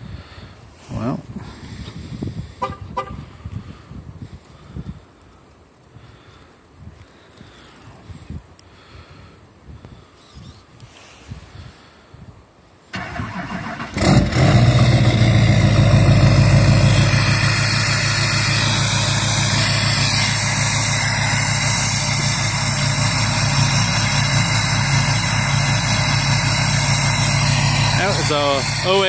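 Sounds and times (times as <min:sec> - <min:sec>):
starter motor cranking: 0:13.0 - 0:15.0
diesel engine idling loudly: 0:14.0 - 0:29.0.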